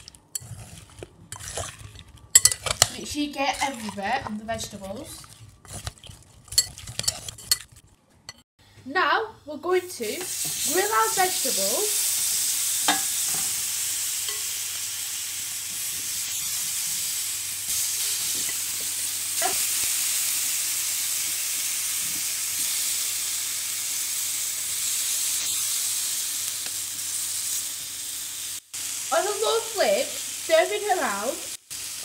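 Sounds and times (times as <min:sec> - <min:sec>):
vegetables sizzling in a grill pan: 0:10.0 - 0:32.0.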